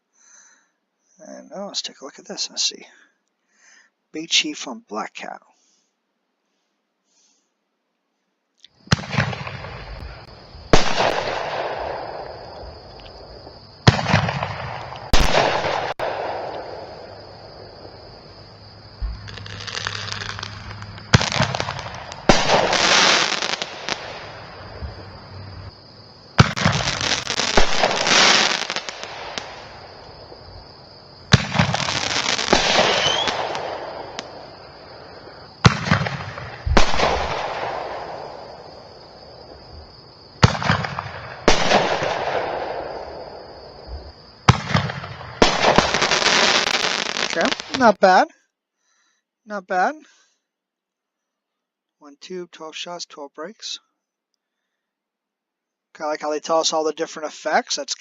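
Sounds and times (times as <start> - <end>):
crackling firework breaks: 8.8 - 12.6, 13.8 - 17.2, 19.0 - 24.7, 26.4 - 30.0, 31.3 - 34.5, 35.6 - 38.6, 40.4 - 43.2, 44.5 - 48.0
firework launch reports: 8.9 - 12.2, 13.8 - 16.9, 19.0 - 24.5, 26.4 - 29.6, 31.3 - 34.1, 35.6 - 38.3, 44.5 - 48.2.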